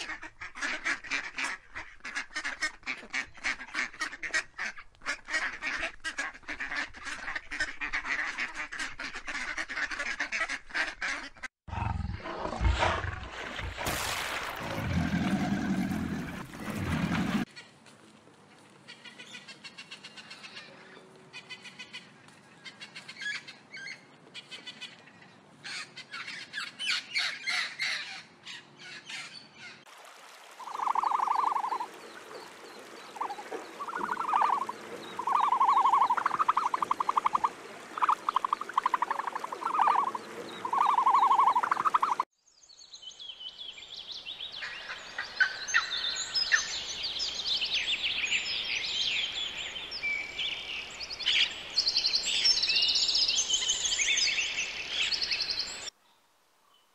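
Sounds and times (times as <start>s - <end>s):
buzzy bird calls: 33.1s - 42.2s.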